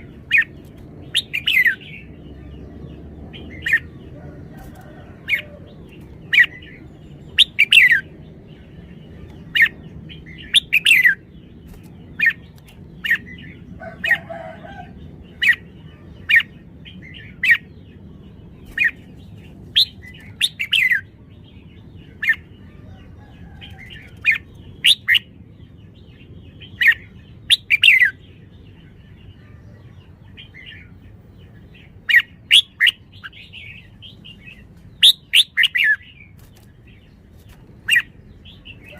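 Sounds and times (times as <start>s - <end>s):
bird chirping calls: 0.0s - 38.9s
low steady background hum: 0.0s - 38.9s.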